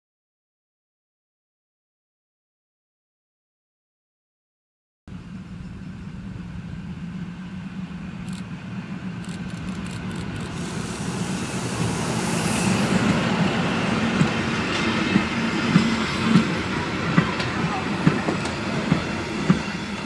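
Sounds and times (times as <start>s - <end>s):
train approaching hum: 5.1s - 20.0s
wheels clicking over rail joints: 9.2s - 10.7s.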